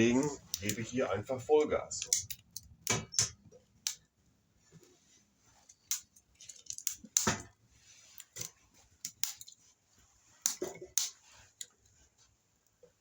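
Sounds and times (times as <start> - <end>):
wood fire crackling and popping: 0.0 - 4.2, 5.6 - 9.6, 10.2 - 11.9.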